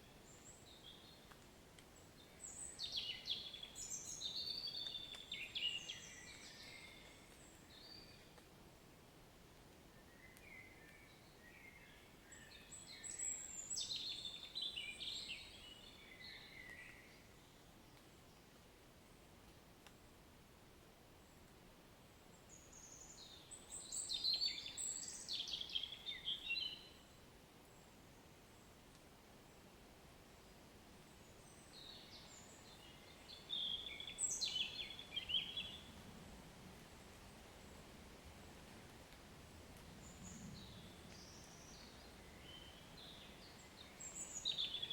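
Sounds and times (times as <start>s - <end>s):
faint hiss of rain: 0.0s - 44.9s
bird song whistles and chirps: 10.0s - 17.2s, 22.5s - 27.0s, 31.7s - 35.9s, 40.2s - 44.9s.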